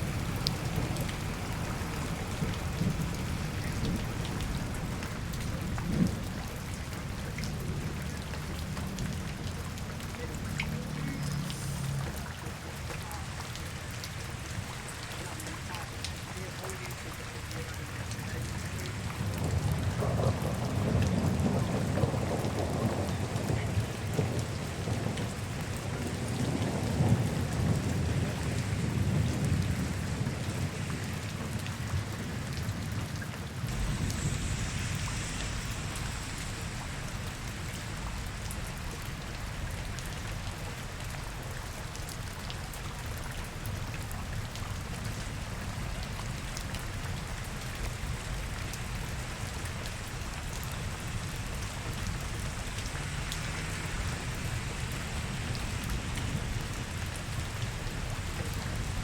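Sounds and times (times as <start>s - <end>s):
rain falling on streets: 0.0s - 59.0s
low rumble: 33.7s - 40.5s.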